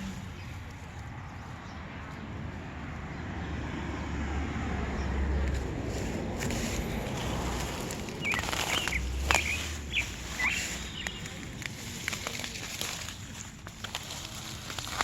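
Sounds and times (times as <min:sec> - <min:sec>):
clicks and rustles: 0:05.4 - 0:15.0
bird chirping: 0:07.6 - 0:11.6.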